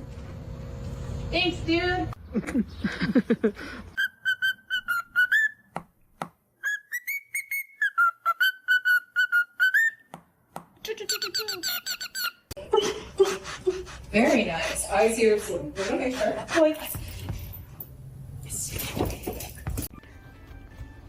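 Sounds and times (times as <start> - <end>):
whistled tune: 4.0 - 5.7, 6.6 - 10.1
whistles and chirps: 4.0 - 5.7, 6.6 - 10.1.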